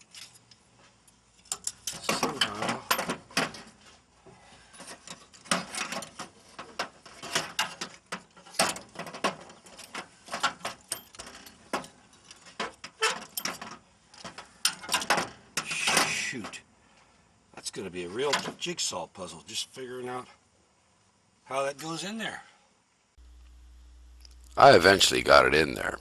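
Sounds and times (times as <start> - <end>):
metallic clicks and clanks: 1.3 - 3.7, 4.7 - 16.2.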